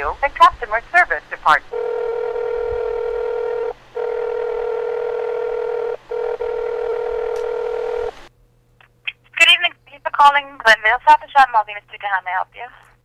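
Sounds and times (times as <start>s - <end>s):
buzzy telephone line tone: 1.7s - 8.3s.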